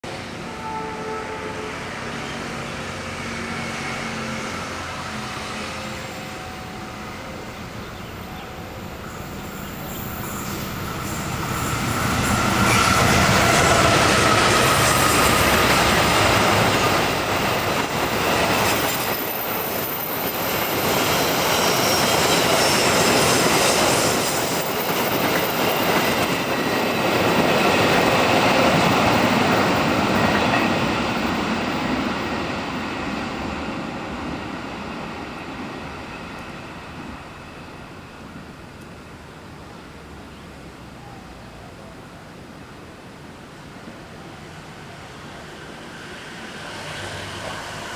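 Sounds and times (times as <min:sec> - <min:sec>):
train coaches rolling on rails: 0:00.1 - 0:41.2, 0:42.4 - 0:47.9
high wheel squeal: 0:03.6 - 0:32.1
train wheel clacks: 0:09.1 - 0:33.2.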